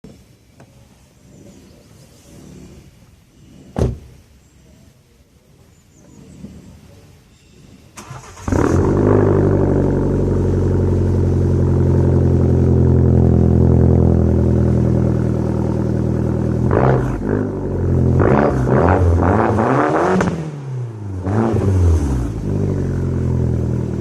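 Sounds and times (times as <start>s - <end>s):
car engine idling and revving: 8.0s - 24.0s.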